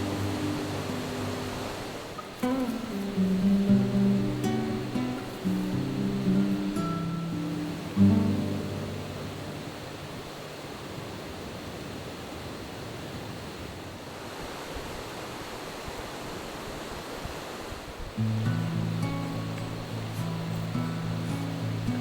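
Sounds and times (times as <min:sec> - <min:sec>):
music: 0:00.0 - 0:01.6, 0:02.4 - 0:10.1, 0:18.2 - 0:22.0
steady rushing outdoor noise: 0:00.0 - 0:22.0.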